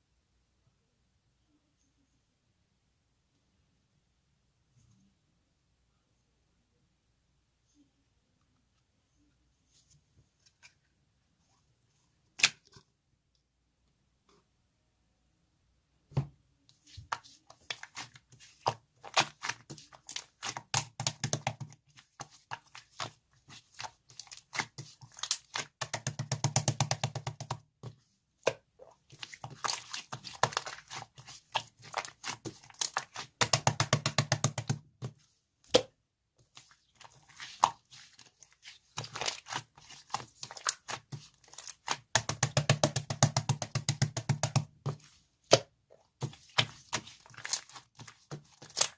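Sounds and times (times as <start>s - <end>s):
crackling and crinkling handling: 36.4s - 42.2s, 44.7s - 48.9s.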